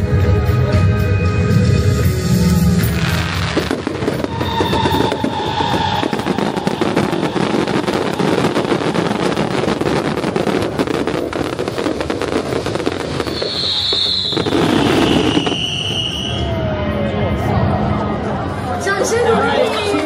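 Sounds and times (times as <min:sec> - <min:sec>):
fireworks crackling: 0:02.1 - 0:16.8.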